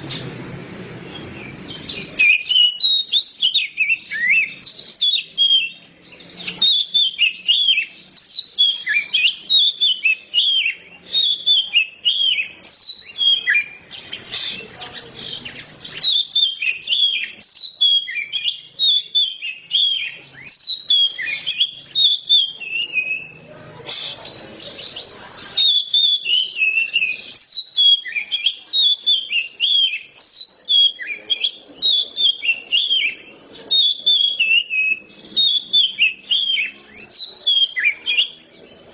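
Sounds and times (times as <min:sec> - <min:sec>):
harsh noisy bird call: 0:00.0 - 0:38.9
magpie-robin singing whistled notes: 0:01.0 - 0:38.9.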